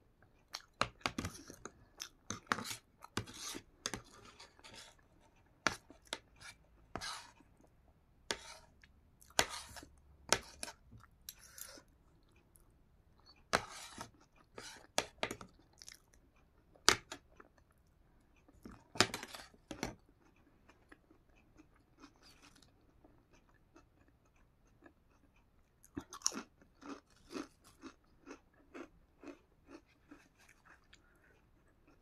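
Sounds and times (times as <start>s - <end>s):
potato chips crunching: 25.9s - 30.2s.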